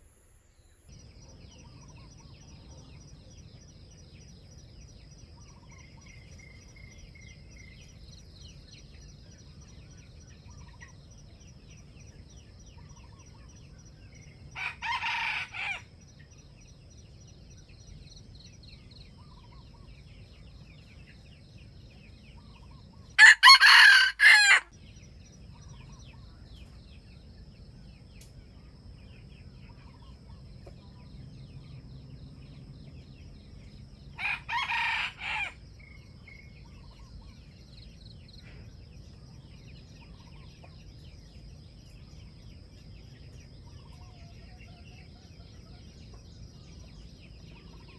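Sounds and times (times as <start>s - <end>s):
faint bird chirps: 0.0s - 23.3s, 24.7s - 47.9s
roosters crowing: 14.5s - 15.9s, 23.2s - 24.8s, 34.1s - 35.6s.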